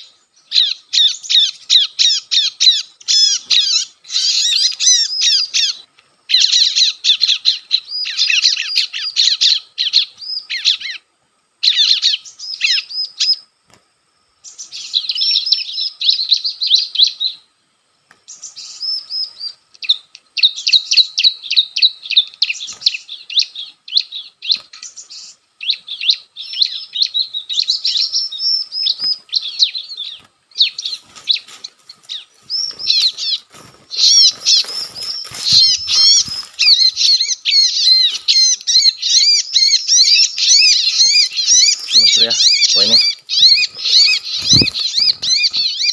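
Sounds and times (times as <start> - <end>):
bird high chattering calls: 0.0 - 11.0, 11.6 - 13.4, 18.3 - 45.9
wing flapping: 30.9 - 37.1, 43.0 - 45.9.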